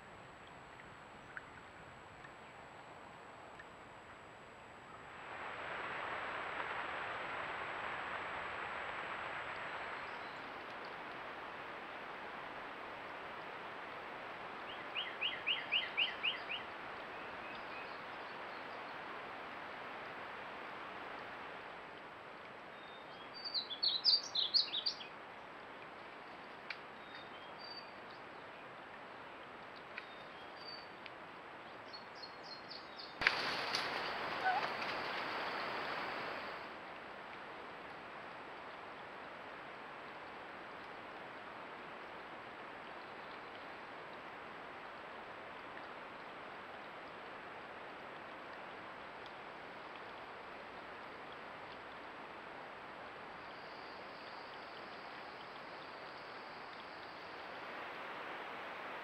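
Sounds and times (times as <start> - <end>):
steady hiss: 32.7 - 37.3
wild birds calling: 33.2 - 36.6.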